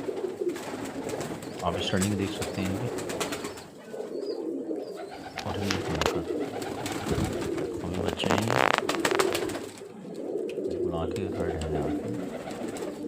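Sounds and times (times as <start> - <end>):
pigeons cooing: 0.0 - 13.0
sharp clicks: 8.3 - 9.5.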